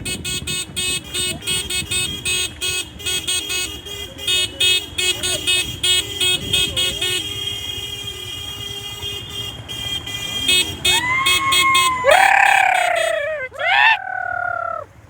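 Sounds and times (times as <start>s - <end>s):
vehicle horn honking: 0.0s - 13.5s
loud rising call: 10.9s - 14.9s.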